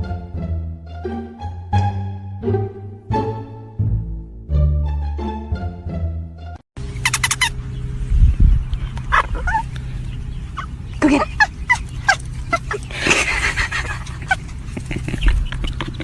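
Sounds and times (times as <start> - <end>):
steady low hum: 6.8 - 16.0
rattling animal calls: 6.9 - 8.0, 8.6 - 16.0.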